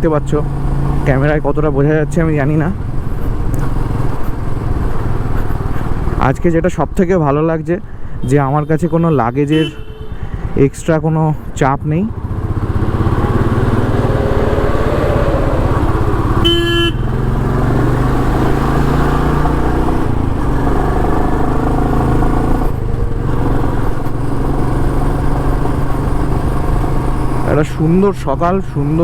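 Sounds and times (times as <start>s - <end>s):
vehicle horn blast: 8.6s - 10.4s, 16.4s - 17.2s
motorcycle engine running: 12.0s - 28.0s.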